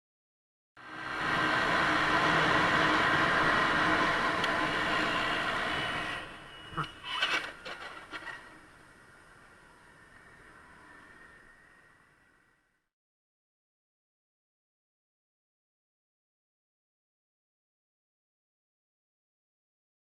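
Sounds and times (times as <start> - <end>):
vehicle running: 0.8 - 12.5.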